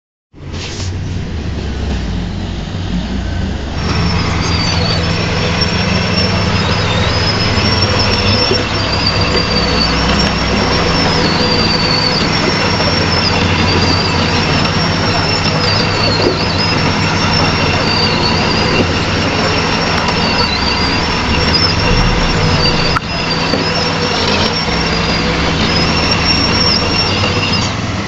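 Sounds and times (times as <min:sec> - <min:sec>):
diesel engine running: 0:00.4 - 0:28.0
high thin whine: 0:19.5 - 0:24.2.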